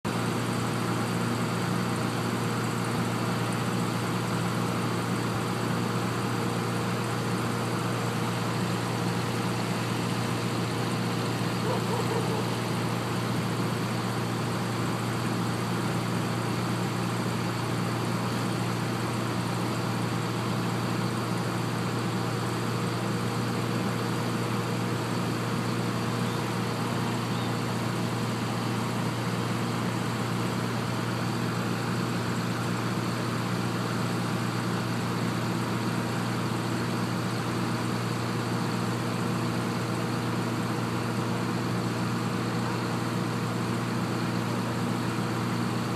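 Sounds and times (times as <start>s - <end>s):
drill rig engine running: 0.1s - 45.9s.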